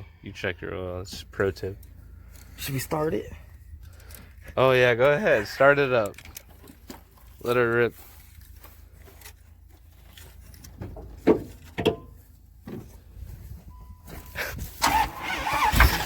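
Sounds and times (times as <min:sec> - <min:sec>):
engine cranking: 0:01.8 - 0:04.8, 0:14.3 - 0:16.0.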